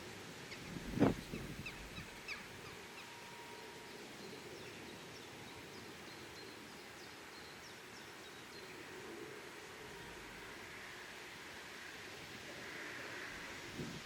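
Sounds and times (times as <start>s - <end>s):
faint outdoor background noise: 0.0s - 14.0s
small birds chirping: 0.5s - 2.8s.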